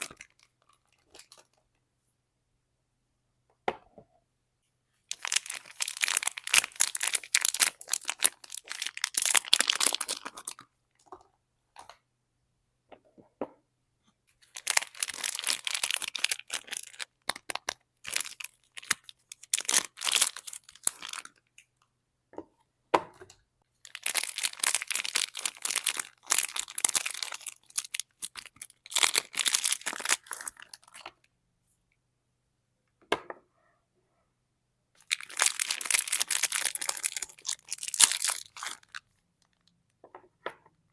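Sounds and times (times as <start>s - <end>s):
wrapping tearing and crinkling: 0.0s - 1.5s, 5.1s - 10.6s, 14.4s - 21.4s, 23.8s - 31.0s, 35.0s - 39.6s.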